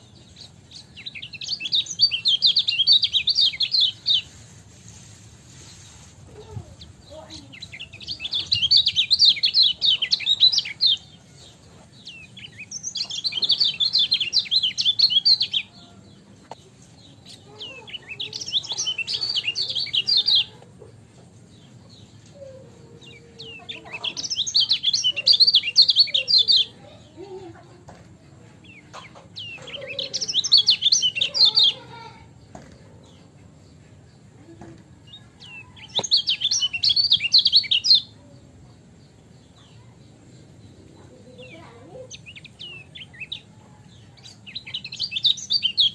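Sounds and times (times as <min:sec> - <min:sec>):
bird twittering: 0:07.5 - 0:11.0.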